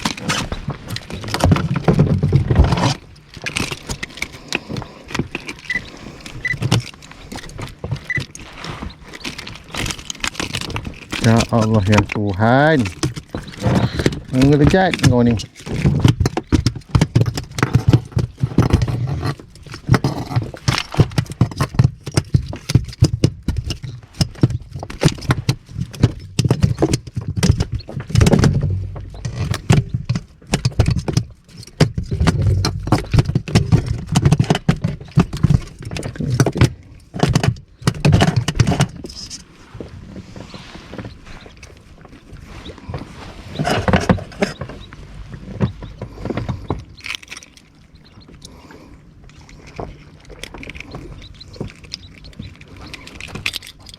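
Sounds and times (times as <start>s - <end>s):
fish thumping on boat floor: 0.0s - 39.1s.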